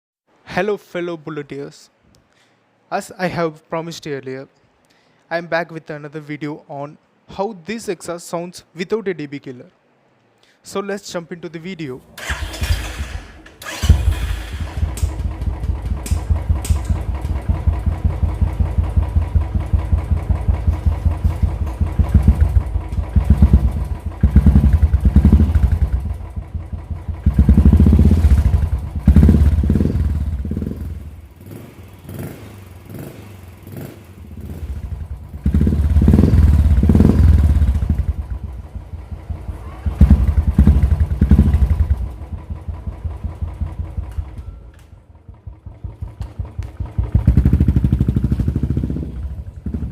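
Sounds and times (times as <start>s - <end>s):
motorcycle engine thumping and revving: 13.8s - 44.6s, 45.2s - 49.9s.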